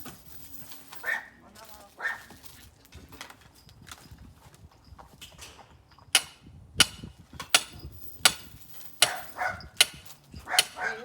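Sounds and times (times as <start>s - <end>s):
faint shuffling: 0.0s - 4.7s
axe chopping firewood: 6.2s - 10.9s.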